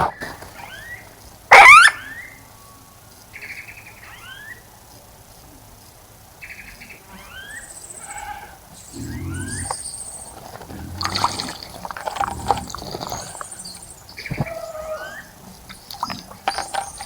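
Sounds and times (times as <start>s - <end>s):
birds calling with trills: 6.4s - 17.0s
birds splashing in water: 8.8s - 17.0s.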